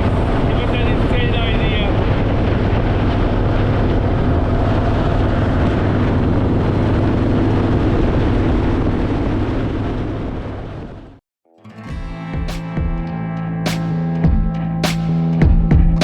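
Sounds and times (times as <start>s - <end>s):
wind noise on microphone: 0.0s - 11.2s.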